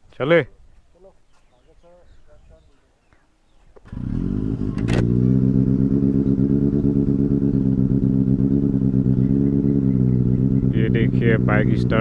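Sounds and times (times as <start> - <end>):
motorcycle engine idling: 3.8 - 12.0.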